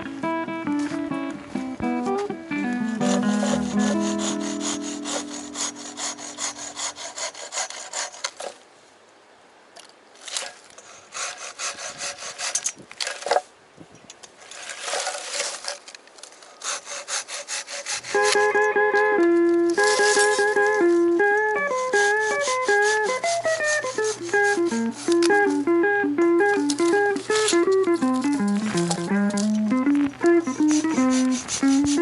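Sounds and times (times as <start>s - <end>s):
hand saw cutting wood: 2.0s - 8.6s, 10.2s - 13.4s, 14.5s - 18.7s, 19.7s - 25.7s, 26.5s - 29.6s, 30.2s - 32.0s.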